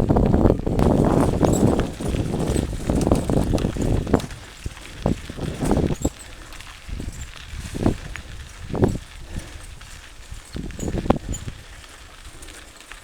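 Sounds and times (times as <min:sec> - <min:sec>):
mountain bike rattling over trail: 0:00.0 - 0:13.0.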